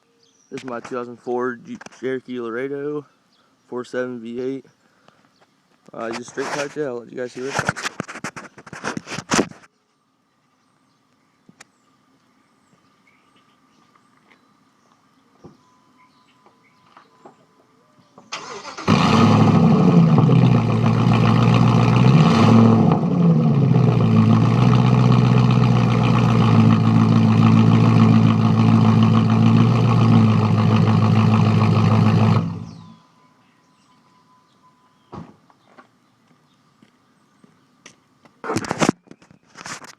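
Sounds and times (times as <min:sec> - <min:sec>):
engine cranking and starting: 0:18.3 - 0:23.2, 0:23.8 - 0:32.8
loud engine revving and idling: 0:18.8 - 0:32.9.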